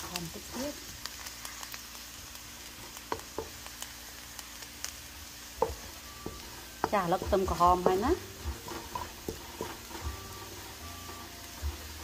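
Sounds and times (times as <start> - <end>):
food sizzling in oil in a wok: 0.0 - 12.0
spatula knocking on a pan: 3.1 - 3.6, 5.6 - 10.3.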